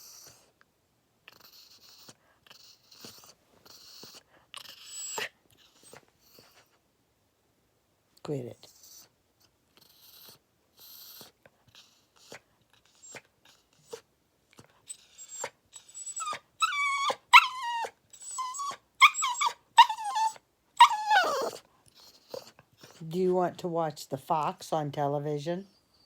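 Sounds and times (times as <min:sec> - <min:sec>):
dog whining: 0:00.0 - 0:00.5, 0:01.3 - 0:06.8, 0:09.8 - 0:14.1, 0:14.8 - 0:23.1.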